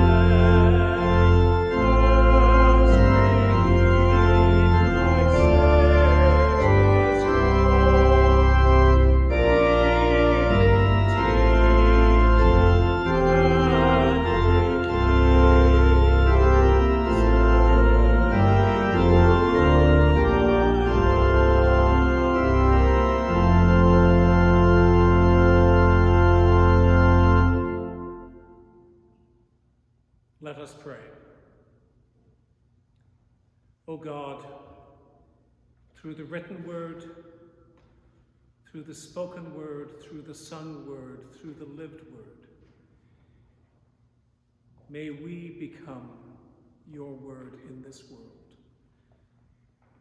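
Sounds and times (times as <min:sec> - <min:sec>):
organ playing slow chords: 0:00.0 - 0:29.2.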